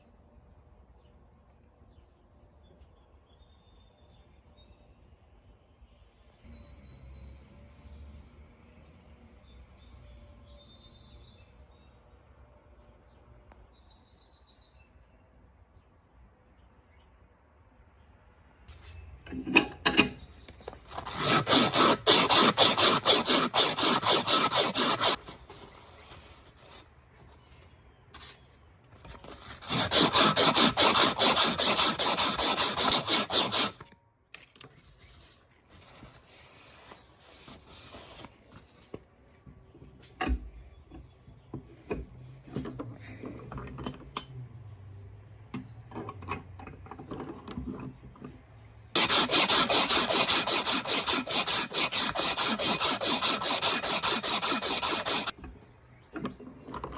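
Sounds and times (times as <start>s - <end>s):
hand tool rasping metal: 20.9s - 25.3s, 29.3s - 33.8s, 49.0s - 55.4s.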